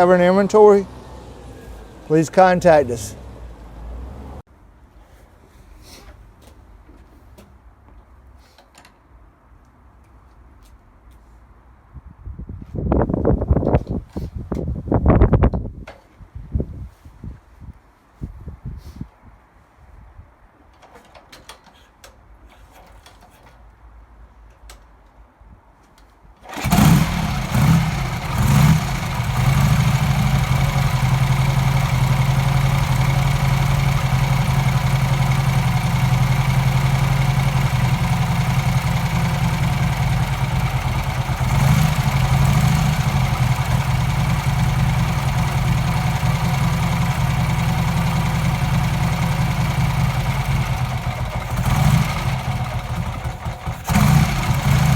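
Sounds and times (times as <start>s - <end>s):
motorcycle engine revving and idling: 26.4s - 54.9s.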